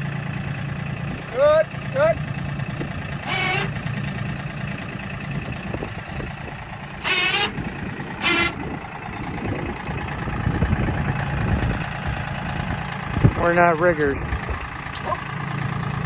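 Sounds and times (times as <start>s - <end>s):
tractor engine idling: 0.0s - 16.0s
short high-pitched squeals: 3.2s - 3.8s, 7.0s - 8.7s.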